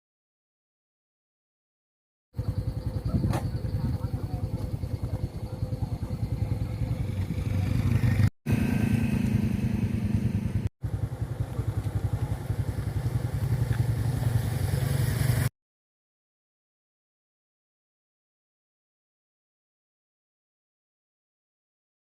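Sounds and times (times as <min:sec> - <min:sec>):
motorcycle engine running: 0:02.4 - 0:15.5.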